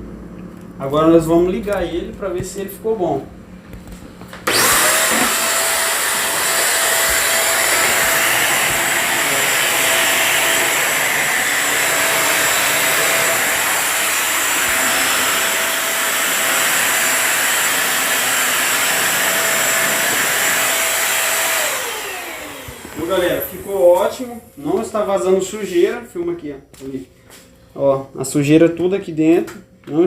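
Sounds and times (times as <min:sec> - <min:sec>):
vacuum cleaner motor whining: 0:04.4 - 0:25.2.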